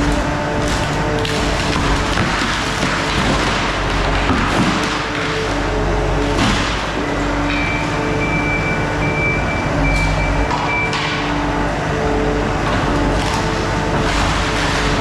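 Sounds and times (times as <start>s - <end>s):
skid steer engine running: 0.0s - 15.0s
reversing alarm beeping: 7.0s - 11.2s.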